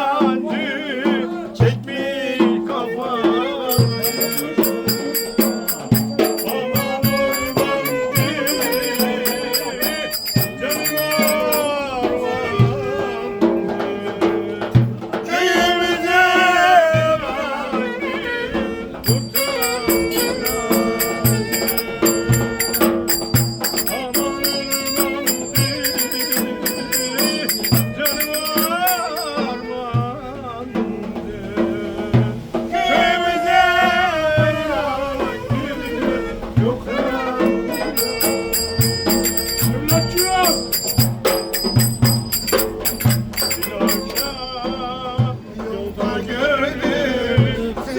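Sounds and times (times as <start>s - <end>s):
steady drum beat: 3.7s - 11.9s, 19.0s - 30.2s, 37.4s - 44.6s
ornamented melody: 3.7s - 12.0s, 19.0s - 30.0s, 37.5s - 44.6s.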